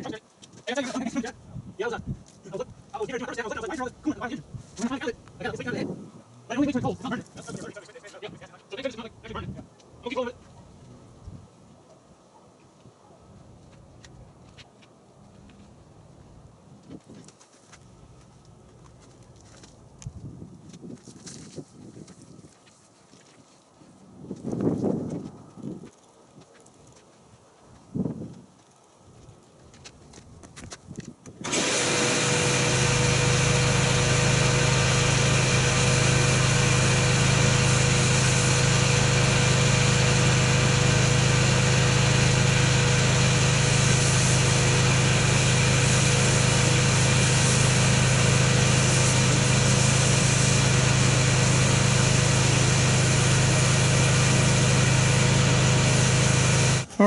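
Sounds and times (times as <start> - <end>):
loud hiss: 31.4 - 56.9
machine motor humming: 31.5 - 56.9.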